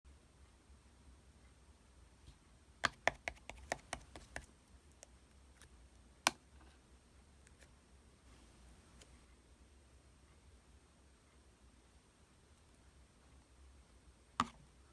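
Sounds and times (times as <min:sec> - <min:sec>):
slime clicks and taps: 0:02.8 - 0:04.5.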